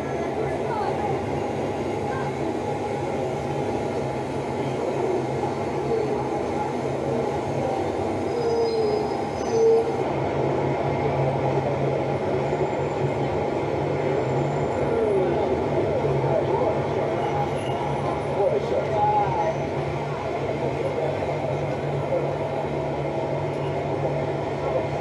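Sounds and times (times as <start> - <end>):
heavy vehicle engine drone: 0.0 - 25.0
brief squeals: 8.3 - 10.0.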